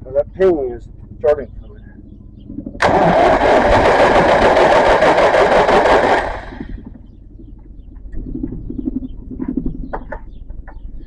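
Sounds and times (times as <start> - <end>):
tractor engine cranking: 2.8 - 6.8.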